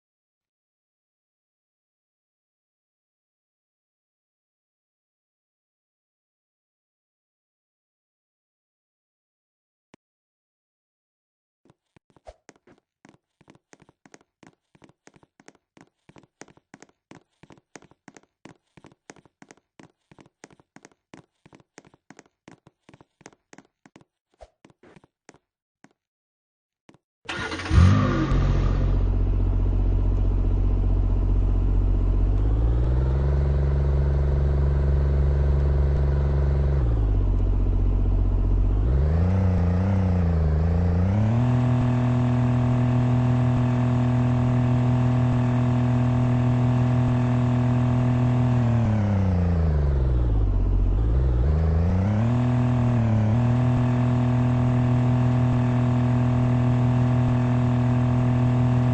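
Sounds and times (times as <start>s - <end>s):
engine starting and revving: 27.3s - 58.9s.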